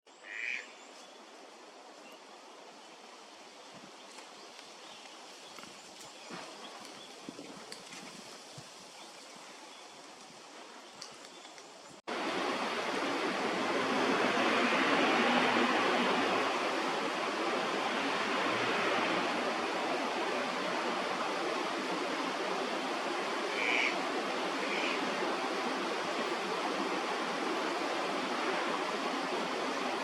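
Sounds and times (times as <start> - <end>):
water rushing in stream: 12.0 - 30.0.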